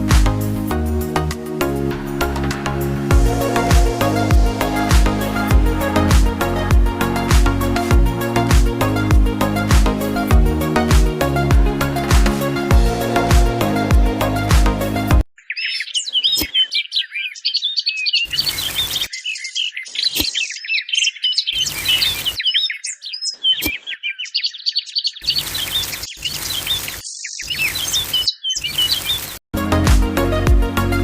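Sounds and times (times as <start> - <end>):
small birds chirping: 15.4 - 29.4.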